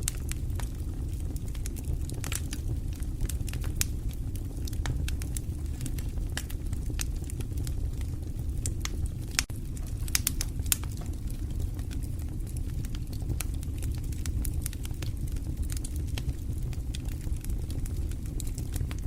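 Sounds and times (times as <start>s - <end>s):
fire crackling: 0.0s - 19.0s
sharp pops and snaps: 8.7s - 11.1s.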